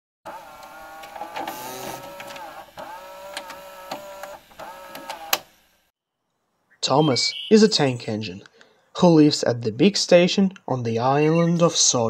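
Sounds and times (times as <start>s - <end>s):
printer clicks: 0.3s - 5.5s
printer motors whining: 0.3s - 5.7s.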